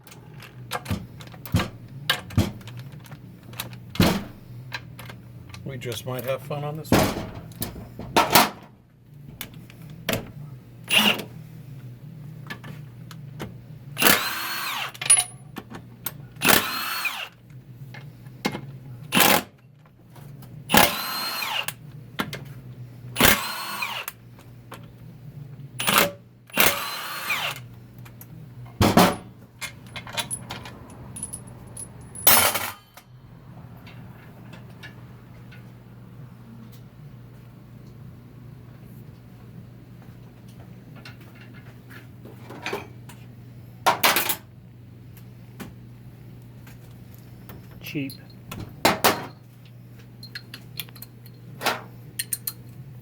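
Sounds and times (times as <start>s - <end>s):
power driver motor bursts: 10.9s - 11.3s, 14.0s - 15.0s, 16.4s - 17.3s, 20.7s - 21.7s, 23.2s - 24.2s, 25.8s - 27.7s.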